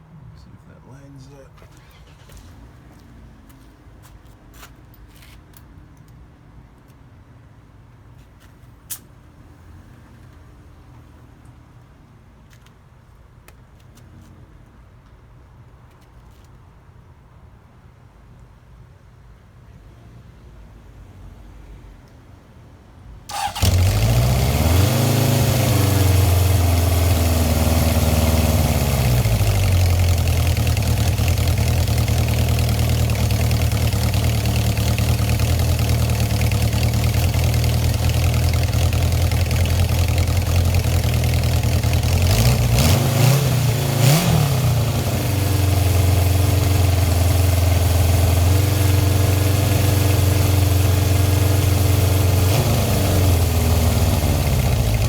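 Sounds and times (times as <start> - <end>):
motorcycle engine starting and idling: 1.6 - 3.2, 23.3 - 55.0.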